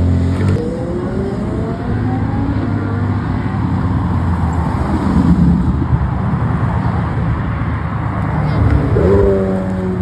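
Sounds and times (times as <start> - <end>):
traffic noise: 0.0 - 10.0
car engine accelerating: 8.4 - 10.0.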